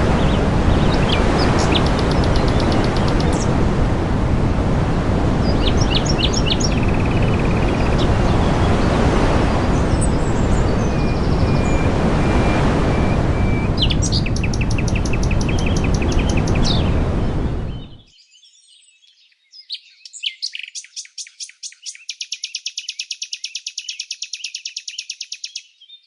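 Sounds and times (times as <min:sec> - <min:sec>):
small birds chirping: 0:00.0 - 0:03.6, 0:05.4 - 0:26.0
loud steady rushing noise: 0:00.0 - 0:18.0.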